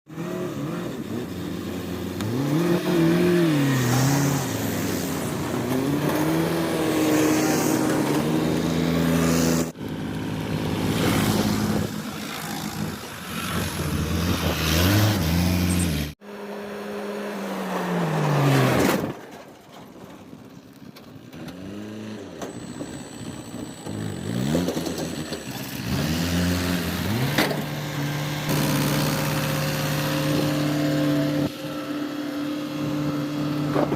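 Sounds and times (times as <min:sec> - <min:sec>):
diesel engine revving: 0:00.1 - 0:18.8, 0:21.4 - 0:33.9.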